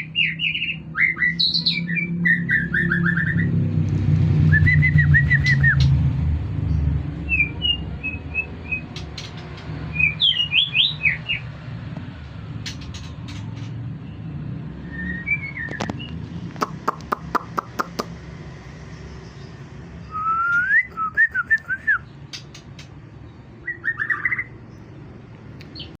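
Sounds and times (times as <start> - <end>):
bird singing whistled phrases: 14.8 - 16.1, 20.0 - 22.1
sharp clicks: 15.7 - 18.1.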